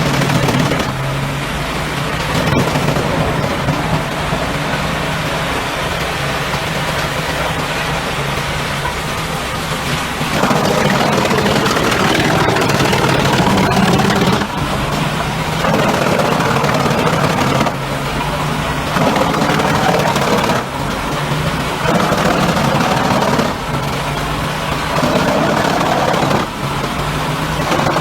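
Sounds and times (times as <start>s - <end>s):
wood grinding and crackling: 0.0s - 1.3s, 2.2s - 4.1s, 10.3s - 17.9s, 18.8s - 28.0s
wood chipper engine drone: 0.0s - 28.0s.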